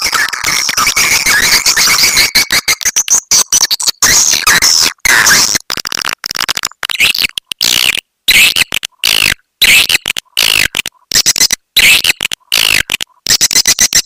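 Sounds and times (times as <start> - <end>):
swiftlets chirping and twittering: 0.0 - 4.0.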